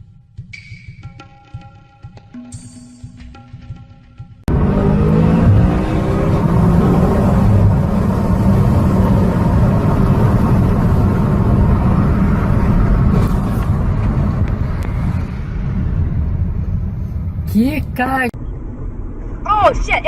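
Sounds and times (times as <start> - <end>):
car engine rumble: 4.5 - 19.5
road noise: 4.5 - 20.0.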